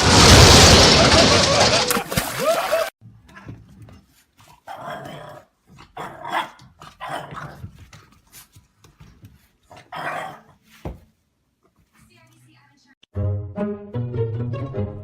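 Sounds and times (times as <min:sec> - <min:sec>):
dog barking and growling: 0:03.2 - 0:07.9, 0:09.7 - 0:10.6.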